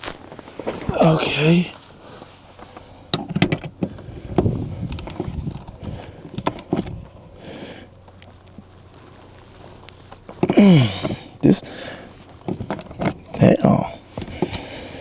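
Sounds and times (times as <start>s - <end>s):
tools clicking and knocking: 3.1s - 7.0s, 12.4s - 13.4s.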